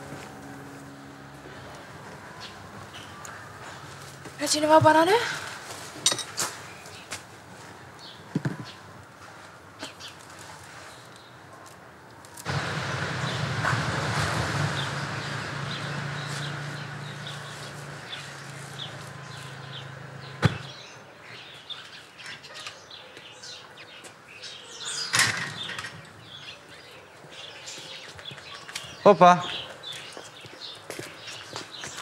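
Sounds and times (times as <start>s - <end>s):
small birds chirping: 14.7s - 32.0s.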